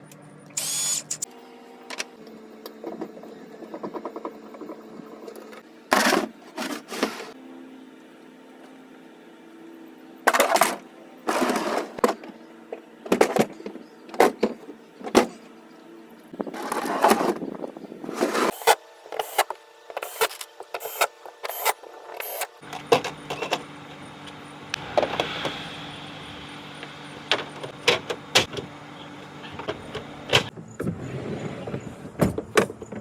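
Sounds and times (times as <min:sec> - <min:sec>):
knocks and clatter of parts: 0:02.8 - 0:07.3, 0:13.0 - 0:15.4, 0:31.7 - 0:33.0
low hum: 0:22.6 - 0:31.1.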